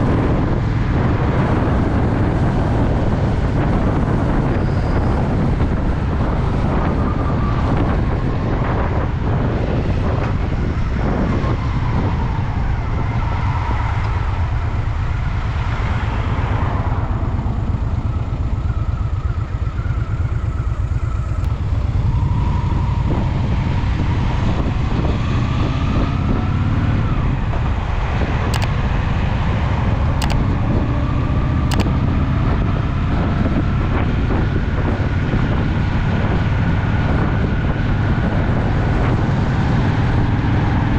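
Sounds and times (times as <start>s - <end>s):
motorcycle engine running: 0.0s - 40.9s
short clicks: 28.5s - 28.7s, 30.2s - 30.4s, 31.7s - 31.9s.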